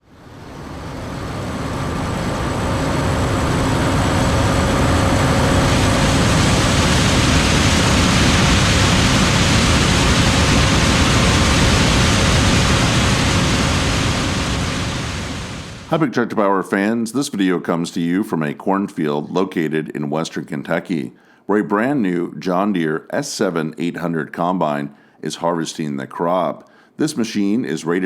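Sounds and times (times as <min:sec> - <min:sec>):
faint machine whines: 0:00.0 - 0:15.9
combine harvester drone: 0:00.0 - 0:16.0.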